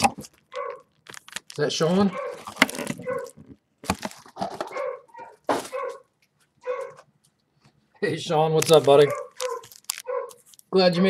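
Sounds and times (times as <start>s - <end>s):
dog barking: 0.5s - 0.9s, 2.1s - 3.4s, 4.7s - 7.0s, 9.0s - 10.4s.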